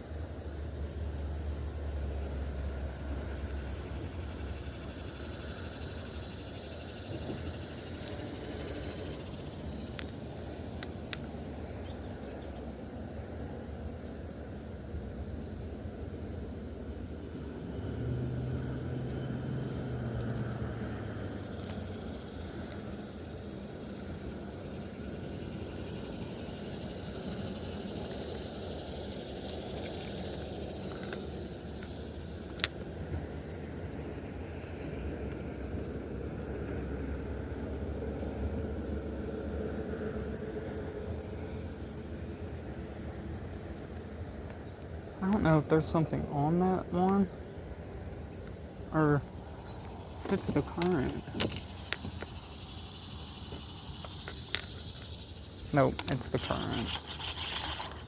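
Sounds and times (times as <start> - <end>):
river rumble and hiss: 0.0 - 58.0.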